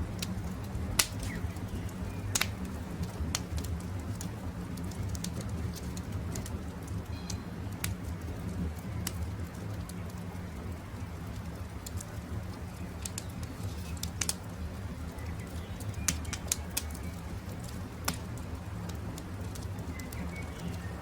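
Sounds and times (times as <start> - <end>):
campfire crackling and popping: 0.0 - 21.0
faint birds calling: 19.8 - 21.0.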